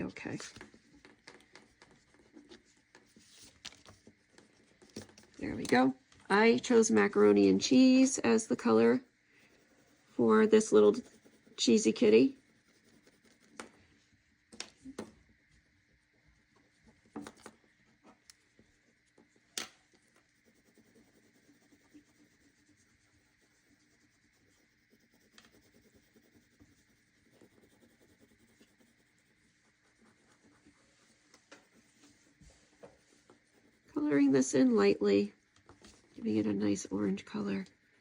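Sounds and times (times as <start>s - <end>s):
crayon scratching on paper: 0.0s - 13.8s, 19.9s - 34.8s.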